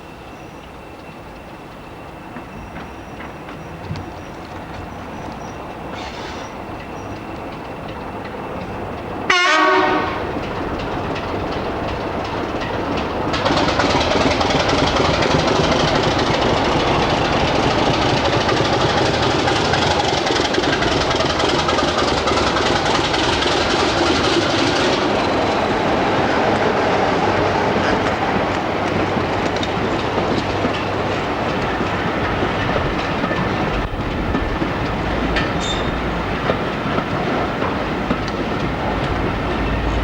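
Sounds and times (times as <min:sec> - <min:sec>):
train running past: 0:00.0 - 0:40.0
locomotive horn blast: 0:09.3 - 0:10.4.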